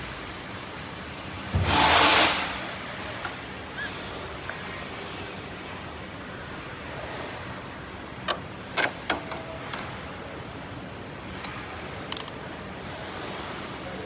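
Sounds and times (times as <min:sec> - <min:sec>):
tools and metal parts clicking: 0:08.3 - 0:09.9, 0:11.4 - 0:12.4.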